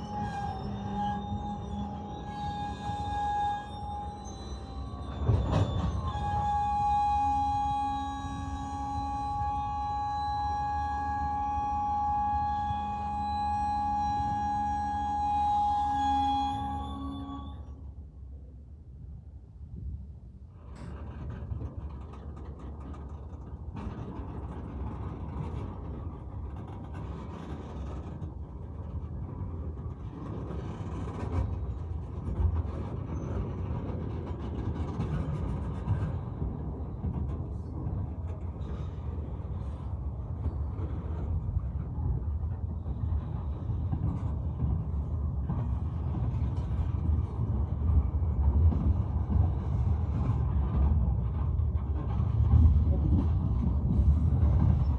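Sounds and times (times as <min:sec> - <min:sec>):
steel wheels rumbling on rail: 0:00.0 - 0:54.9.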